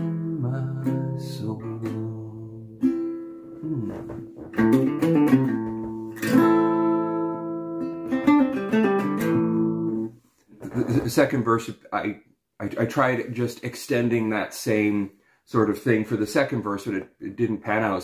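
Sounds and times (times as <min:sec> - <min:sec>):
acoustic guitar strummed chords: 0:00.0 - 0:10.1.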